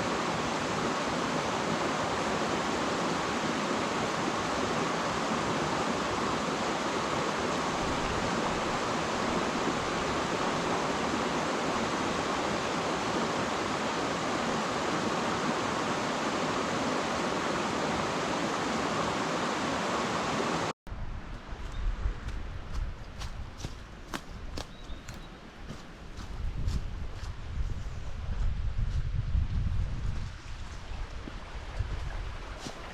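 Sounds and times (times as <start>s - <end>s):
waterfall rushing: 0.0s - 20.7s.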